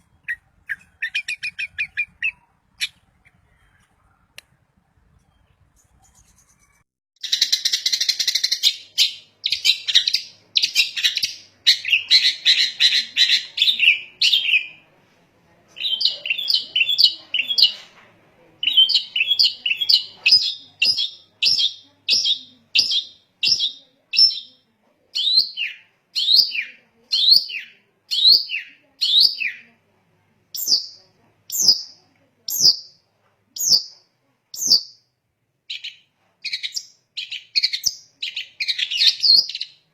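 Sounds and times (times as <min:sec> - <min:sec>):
shrike singing: 0:00.0 - 0:14.7.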